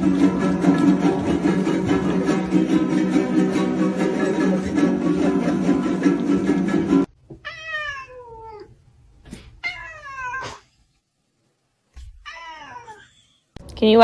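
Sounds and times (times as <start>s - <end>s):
music: 0.0s - 7.1s
pet meowing calls: 7.4s - 8.7s, 9.6s - 10.6s, 12.2s - 13.3s.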